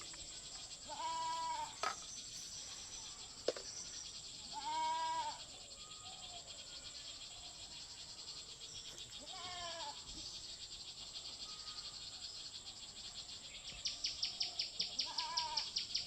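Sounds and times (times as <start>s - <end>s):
high-pitched hiss: 0.0s - 6.0s
goat-like bleat: 0.9s - 1.7s.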